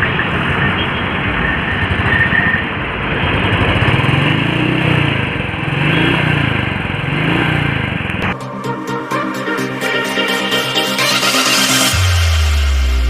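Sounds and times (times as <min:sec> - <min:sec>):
motorcycle engine revving: 0:01.7 - 0:08.4
music: 0:08.2 - 0:13.0.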